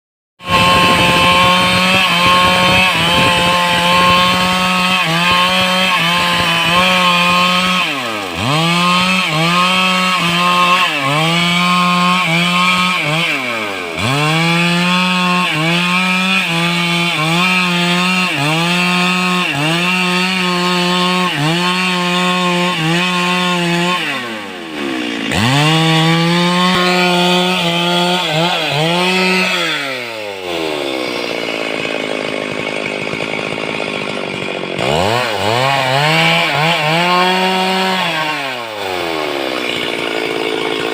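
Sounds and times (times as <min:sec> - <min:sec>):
chainsaw cutting wood: 0:00.4 - 0:40.9.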